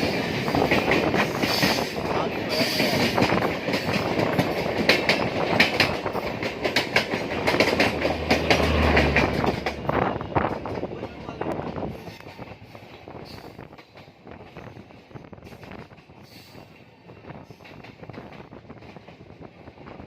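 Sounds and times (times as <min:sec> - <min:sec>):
train wheels clattering on track: 0:00.0 - 0:20.0.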